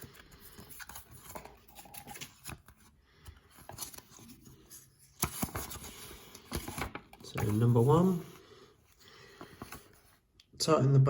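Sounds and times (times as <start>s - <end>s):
paper and plastic rustling: 0.0s - 8.4s, 9.2s - 10.2s.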